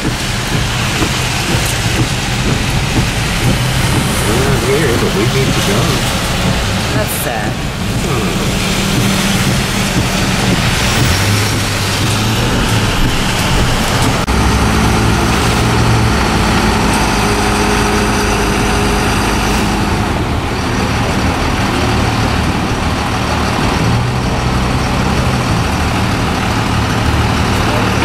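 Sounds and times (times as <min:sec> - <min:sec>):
road and wind noise: 0:00.0 - 0:28.0
vehicle engine hum: 0:00.0 - 0:28.0.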